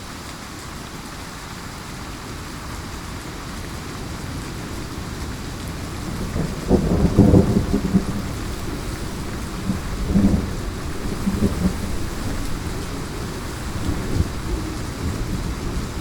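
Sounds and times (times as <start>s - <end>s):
heavy rain: 0.0s - 16.0s
rolling thunder: 6.0s - 16.0s.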